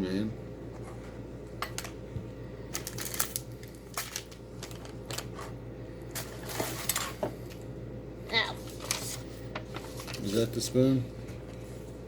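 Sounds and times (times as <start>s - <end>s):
small items clicking and rustling: 2.7s - 5.5s.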